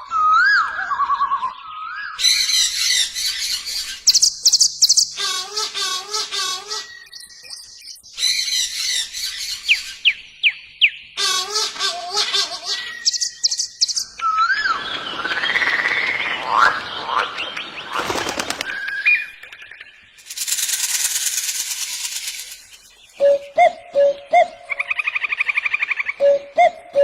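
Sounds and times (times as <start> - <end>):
whistled chirping animal calls: 0.0 - 10.2, 11.2 - 17.5.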